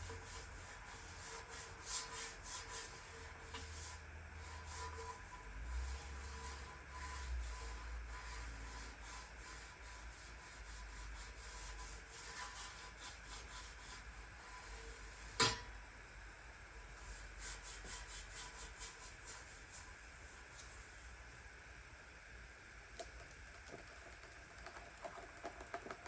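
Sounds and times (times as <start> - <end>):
hand rubbing on a surface: 17.0 - 21.0.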